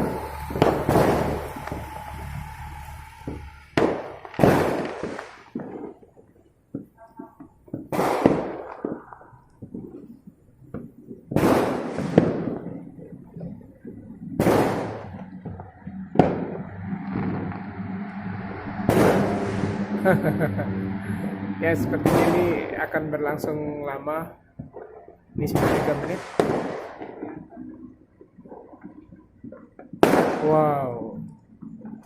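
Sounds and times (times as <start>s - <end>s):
fireworks pops and crackles: 0.0s - 17.8s, 18.9s - 19.6s, 24.2s - 32.0s
fireworks bangs: 0.0s - 32.0s.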